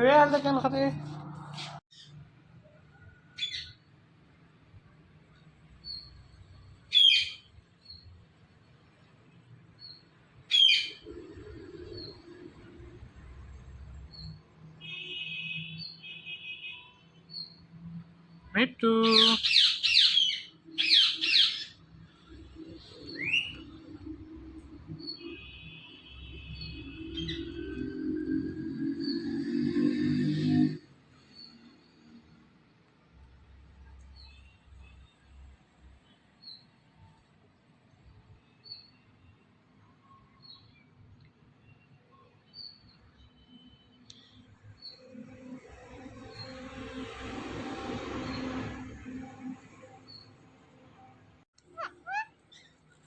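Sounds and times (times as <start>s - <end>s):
parrot screeching: 51.8s - 52.6s.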